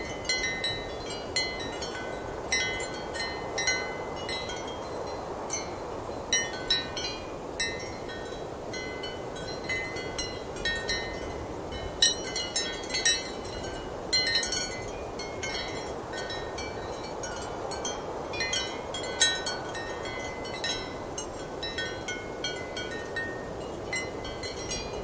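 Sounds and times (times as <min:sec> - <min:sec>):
ceramic wind chimes clinking: 0:00.0 - 0:25.0.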